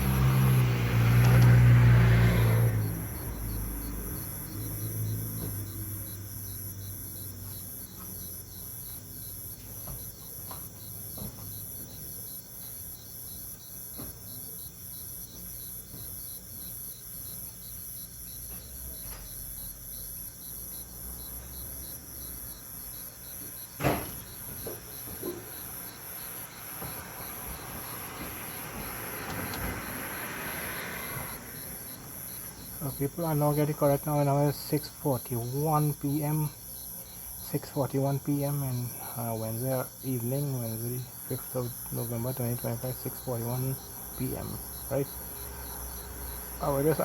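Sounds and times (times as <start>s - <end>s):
crickets chirping: 0.0s - 47.0s
sharp knock: 23.8s - 25.5s.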